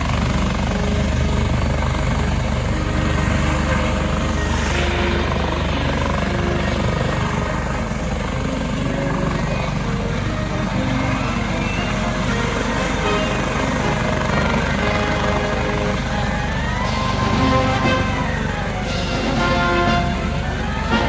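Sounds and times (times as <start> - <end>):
helicopter rotor and turbine: 0.0 - 21.0.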